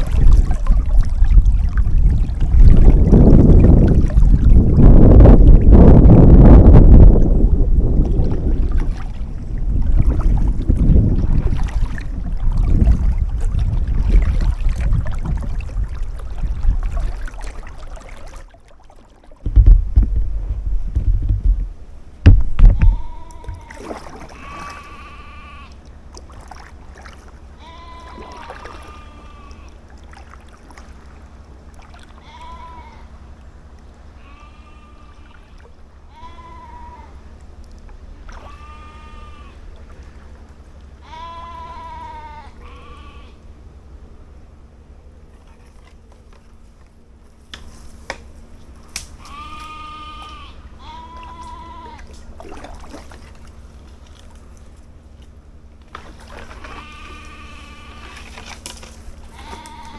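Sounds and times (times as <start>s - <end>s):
strong wind buffeting microphone: 0.0s - 17.3s, 19.4s - 23.7s
sheep bleating: 22.8s - 25.7s, 27.6s - 29.7s, 32.2s - 33.1s, 34.2s - 37.2s, 38.4s - 39.6s, 41.0s - 43.4s, 49.2s - 52.1s, 56.7s - 58.2s, 59.3s - 59.9s.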